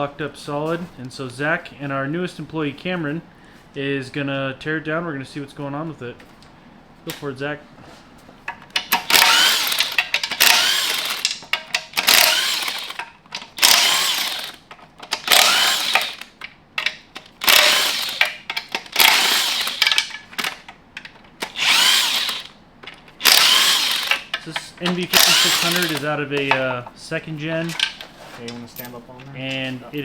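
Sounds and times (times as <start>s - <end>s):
handheld power tool bursts: 8.8s - 16.4s, 17.2s - 20.7s, 21.4s - 22.6s, 23.2s - 26.6s.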